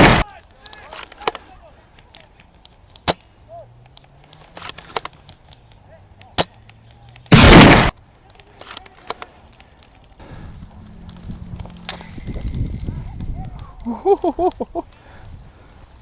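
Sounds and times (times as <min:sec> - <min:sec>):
airsoft gun shots: 0:00.0 - 0:00.2, 0:07.3 - 0:07.9
burst of rapid airsoft fire: 0:00.0 - 0:00.2, 0:07.3 - 0:07.9.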